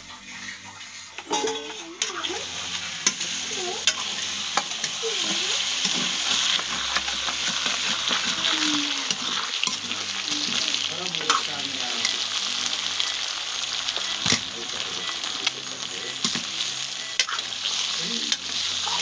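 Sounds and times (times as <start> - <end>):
metal ladle scraping a pan: 0.0 - 10.6
meat sizzling in a wok: 0.0 - 19.0.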